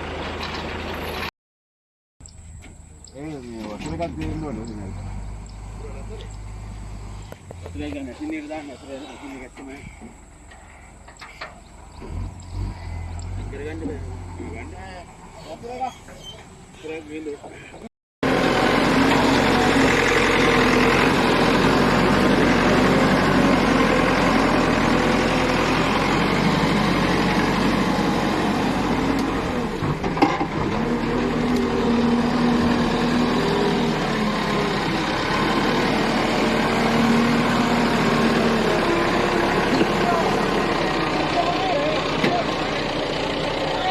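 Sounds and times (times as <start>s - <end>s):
large vehicle engine running: 2.2s - 8.6s, 18.2s - 43.9s.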